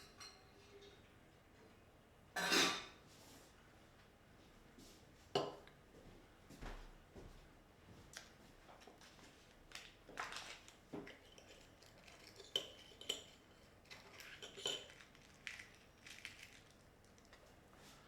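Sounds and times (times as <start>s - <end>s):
cutlery clinking against crockery: 0.0s - 1.0s, 2.4s - 3.0s, 10.2s - 16.6s.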